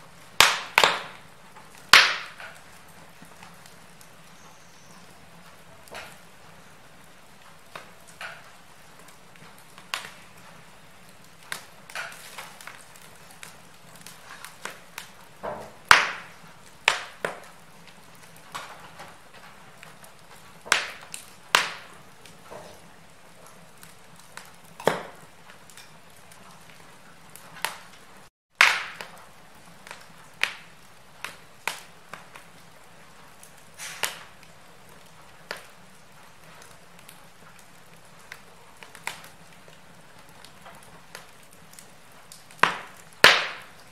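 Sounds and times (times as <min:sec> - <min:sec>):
faint steady hiss: 0:00.0 - 0:43.9
wood fire crackling: 0:00.0 - 0:43.9.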